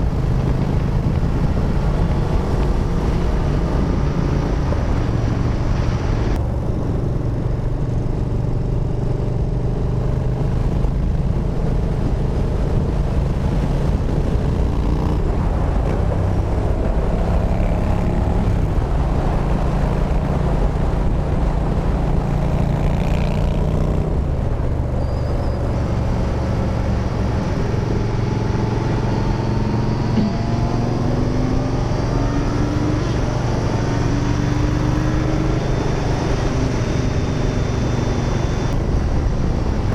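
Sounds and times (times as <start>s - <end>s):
motorcycle engine at riding speed: 0.0s - 39.9s
wind rush over microphone: 0.0s - 39.9s.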